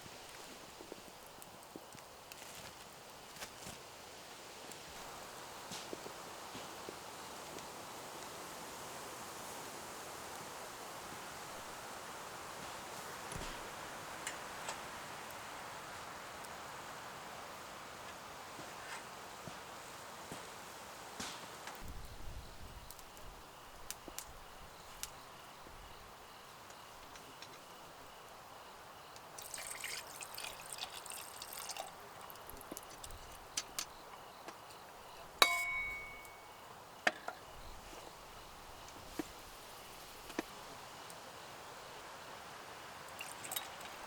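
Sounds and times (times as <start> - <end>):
crackling rustle of camp gear: 0.0 - 44.0
faint outdoor hiss: 0.0 - 44.0
sharp ringing clink: 35.4 - 36.6.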